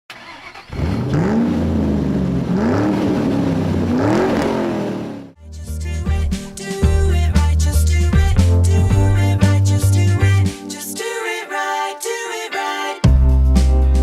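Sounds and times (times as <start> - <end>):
car engine revving: 0.2 - 5.4
music with steady beat: 5.5 - 10.9, 13.0 - 14.0.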